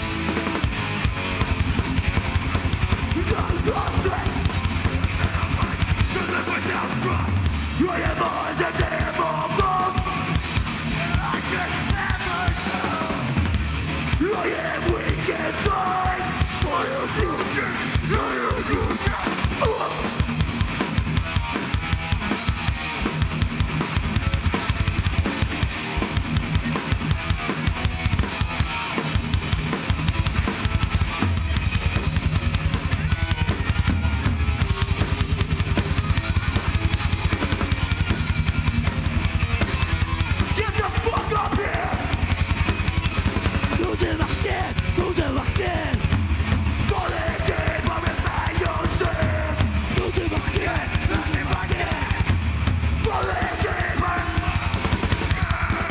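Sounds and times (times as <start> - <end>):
heavy low bass tone: 0.0 - 8.2, 29.3 - 55.9
distorted guitars: 0.0 - 55.9
fast dense drumming: 0.0 - 55.9.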